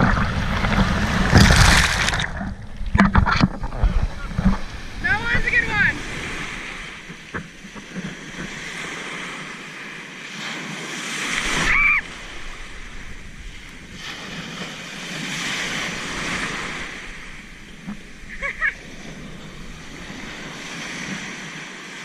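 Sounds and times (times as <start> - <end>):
ocean waves breaking: 0.0 - 22.0.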